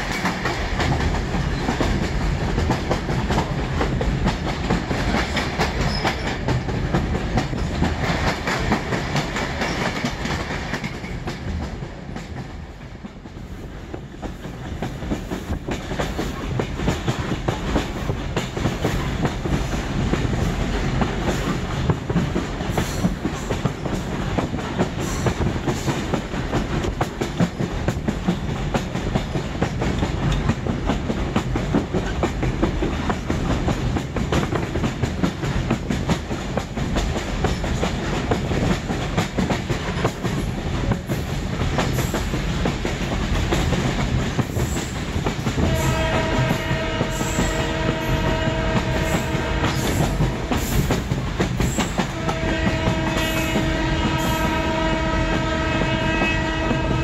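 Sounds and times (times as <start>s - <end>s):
train wheels rumbling and clattering: 0.0s - 57.0s
locomotive horn blast: 45.7s - 50.6s, 52.1s - 57.0s.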